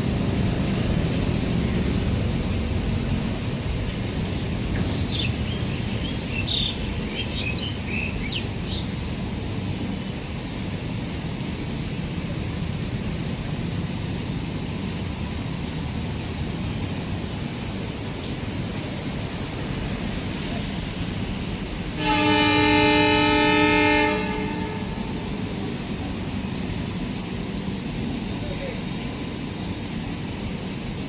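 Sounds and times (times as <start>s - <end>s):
bird chirps: 4.9s - 9.0s.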